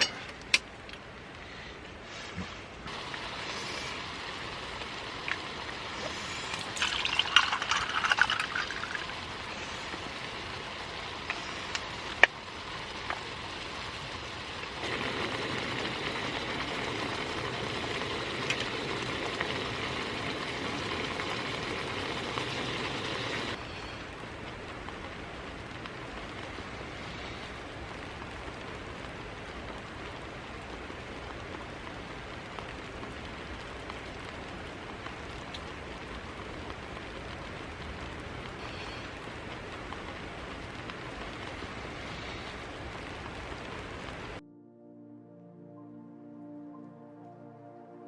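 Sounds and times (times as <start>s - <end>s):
food sizzling in a pan: 2.9s - 23.6s.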